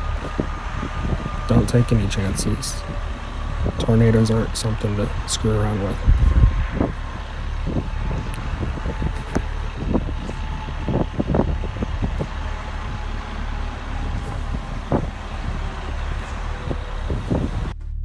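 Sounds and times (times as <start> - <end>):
vehicle driving rumble: 0.0 - 18.0.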